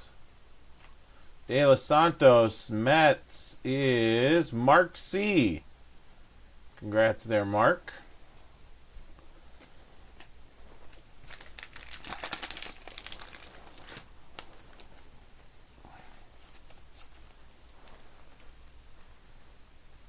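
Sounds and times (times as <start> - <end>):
plastic packaging crinkling: 10.8 - 15.1.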